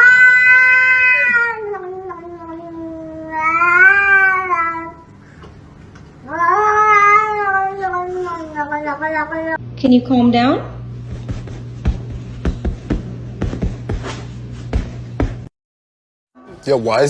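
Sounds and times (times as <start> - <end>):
cat yowling: 0.0 - 5.0, 6.3 - 9.0.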